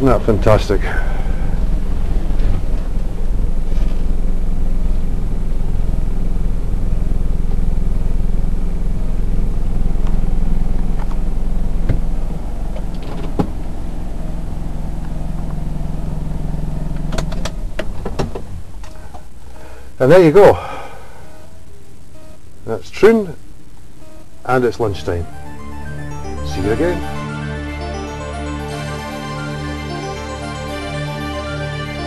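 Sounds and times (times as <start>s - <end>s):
car engine hum from cabin: 0.0s - 19.6s.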